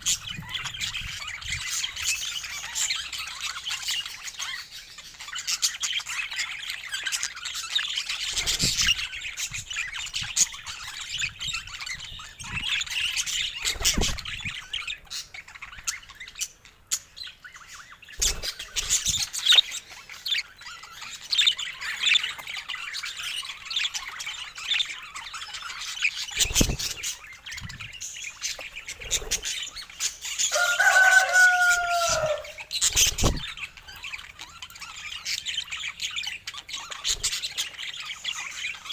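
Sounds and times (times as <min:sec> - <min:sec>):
budgies chattering and warbling: 0:00.0 - 0:38.9
drawn-out bird call: 0:30.5 - 0:33.6.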